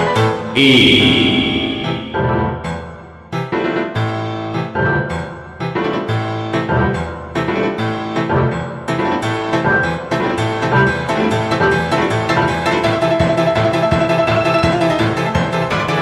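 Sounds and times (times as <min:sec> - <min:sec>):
bass line: 0:00.6 - 0:02.7.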